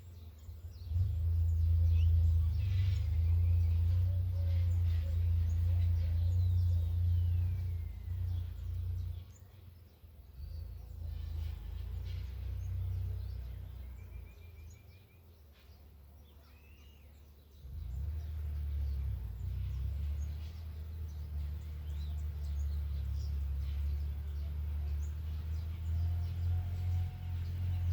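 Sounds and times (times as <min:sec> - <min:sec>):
birds chirping: 0:00.0 - 0:27.9
tractor engine droning: 0:00.5 - 0:09.6, 0:17.6 - 0:27.9.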